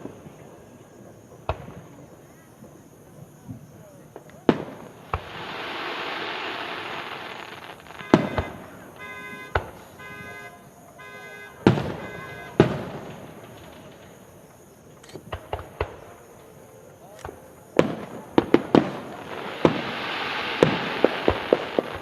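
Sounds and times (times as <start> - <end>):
fireworks crackling hiss: 0.0 - 22.0
firework pops: 1.4 - 2.0, 3.4 - 10.0, 11.6 - 16.3, 17.2 - 22.0.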